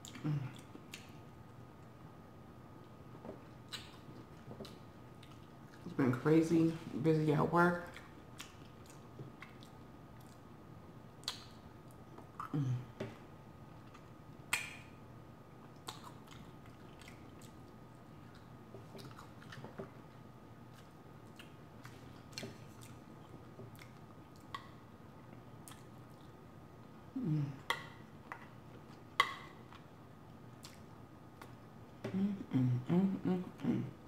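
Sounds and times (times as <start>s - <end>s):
close chewing of food: 2.8s - 5.9s, 7.8s - 10.6s, 15.6s - 27.0s, 27.6s - 31.7s
wet mouth clicks and smacks: 11.2s - 12.5s, 13.9s - 15.0s, 15.8s - 17.6s.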